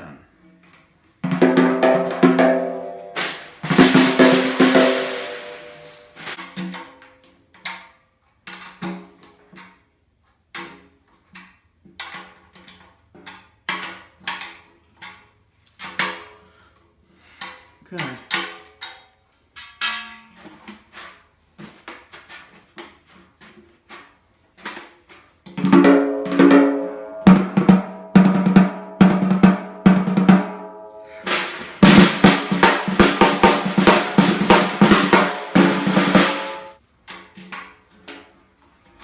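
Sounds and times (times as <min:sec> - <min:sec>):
snare drum taps and rolls: 0:31.2 - 0:36.8.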